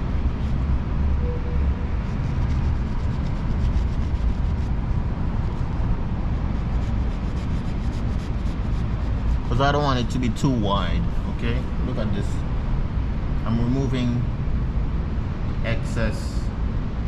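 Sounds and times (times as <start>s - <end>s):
steady low rumble: 0.0s - 17.0s
faint thin high tone: 1.2s - 1.8s.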